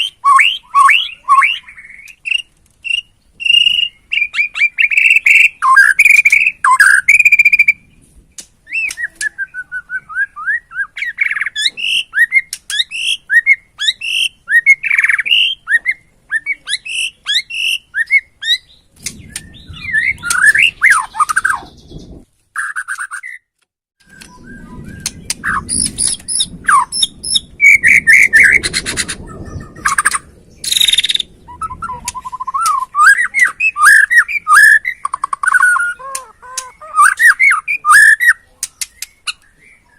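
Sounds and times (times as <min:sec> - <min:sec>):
bird singing whistles and trills: 0:00.0 - 0:08.0, 0:08.6 - 0:39.9
low noise: 0:00.0 - 0:22.4.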